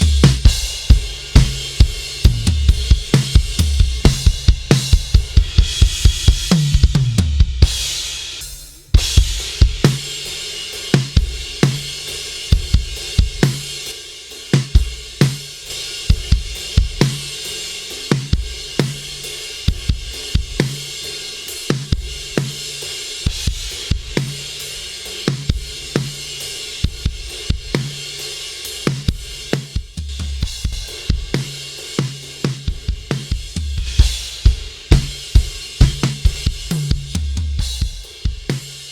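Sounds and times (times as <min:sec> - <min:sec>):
drum kit playing a groove: 0:00.0 - 0:38.9.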